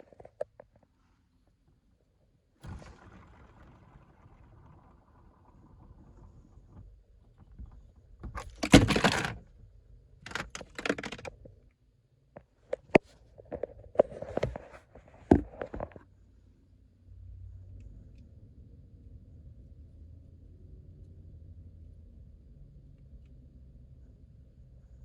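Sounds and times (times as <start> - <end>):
sharp handling clicks: 10.3 - 11.4.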